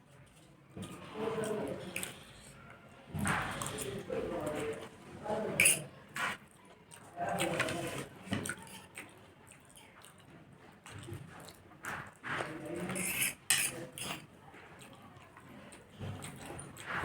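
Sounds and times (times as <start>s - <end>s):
person chewing food: 6.5s - 17.0s.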